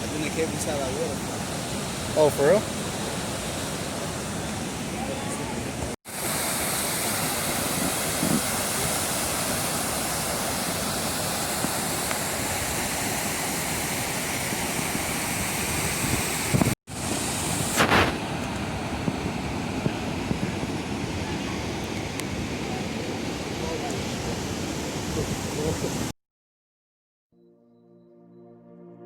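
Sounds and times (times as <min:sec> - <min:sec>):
waterfall roaring: 0:00.0 - 0:26.1.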